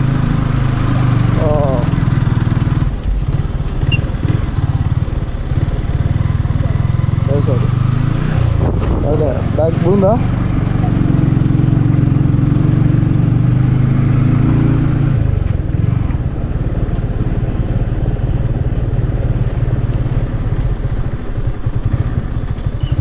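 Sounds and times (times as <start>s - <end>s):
vehicle engine rumble: 0.0s - 23.0s.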